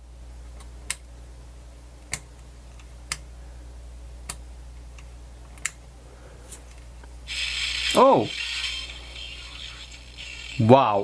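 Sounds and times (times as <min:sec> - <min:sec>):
low steady hum: 0:00.0 - 0:11.0
sharp switch clicks: 0:02.1 - 0:02.3, 0:05.6 - 0:05.8.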